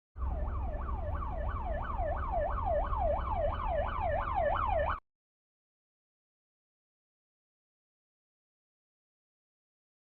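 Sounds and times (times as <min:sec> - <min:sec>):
siren yelping: 0:00.2 - 0:05.0.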